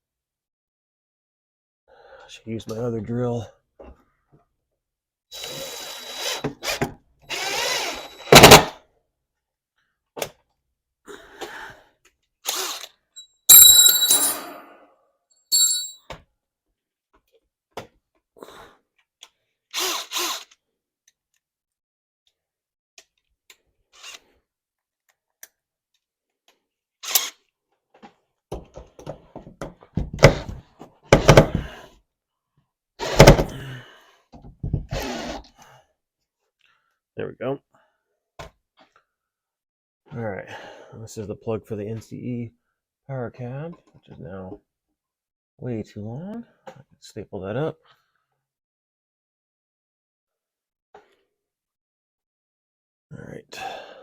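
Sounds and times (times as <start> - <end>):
power drill bursts: 7.3 - 8.7.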